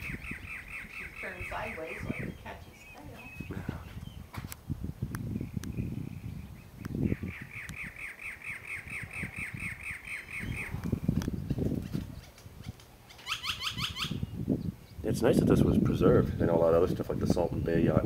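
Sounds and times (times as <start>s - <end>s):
bird squawking calls: 0.0s - 3.6s, 6.9s - 10.8s, 12.6s - 14.3s
low gusty rumble: 0.0s - 8.0s, 8.8s - 12.8s, 14.1s - 18.0s.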